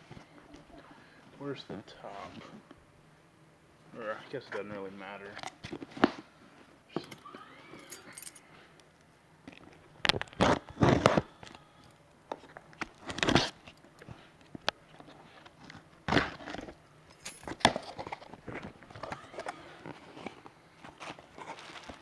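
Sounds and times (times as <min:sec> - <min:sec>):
bubble wrap rustling and crinkling: 0:12.4 - 0:13.8, 0:17.8 - 0:22.0.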